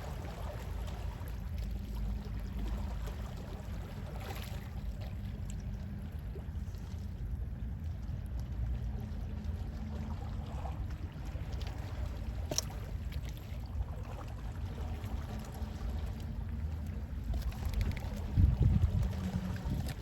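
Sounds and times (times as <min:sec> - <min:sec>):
sea waves lapping: 0:00.0 - 0:20.0
steady low rumble: 0:00.0 - 0:20.0.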